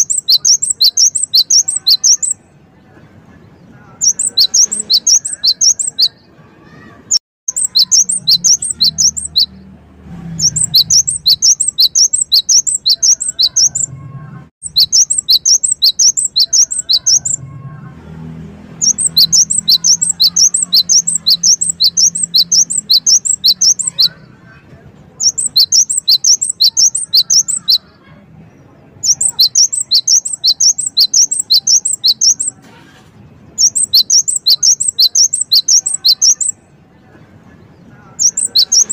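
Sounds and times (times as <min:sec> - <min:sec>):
bird song sharp high notes: 0:00.0 - 0:02.6, 0:04.0 - 0:14.0, 0:14.6 - 0:17.5, 0:18.8 - 0:24.3, 0:25.2 - 0:27.9, 0:29.0 - 0:32.6, 0:33.6 - 0:36.7, 0:38.2 - 0:38.9.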